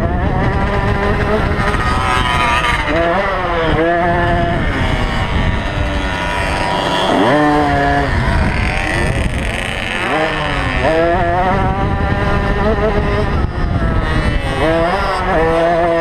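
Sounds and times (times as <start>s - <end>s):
motocross bike engine revving: 0.0s - 16.0s
other bike engines running: 0.0s - 16.0s.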